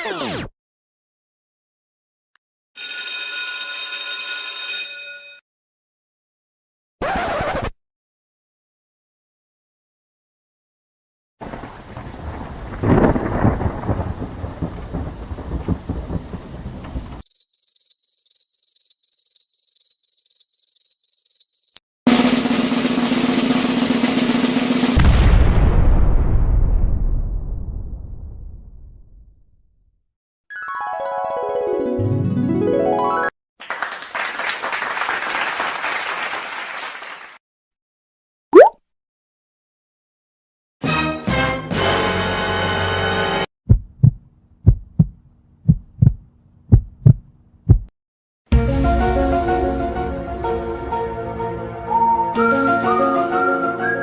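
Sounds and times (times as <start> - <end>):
thunderclap and rumbling: 11.4 - 17.2, 25.0 - 29.2
crowd applause: 33.6 - 37.4.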